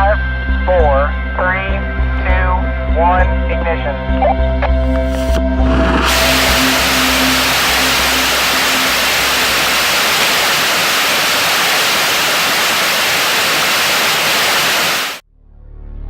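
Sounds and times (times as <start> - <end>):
rocket motor roaring: 4.9 - 15.2.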